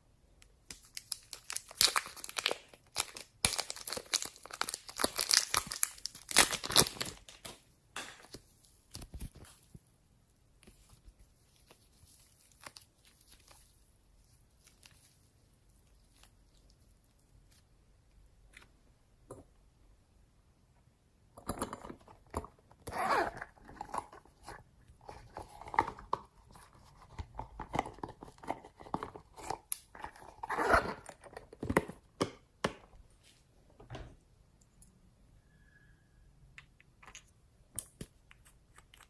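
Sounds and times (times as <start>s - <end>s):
slime squishing and crackling: 0.7s - 7.5s.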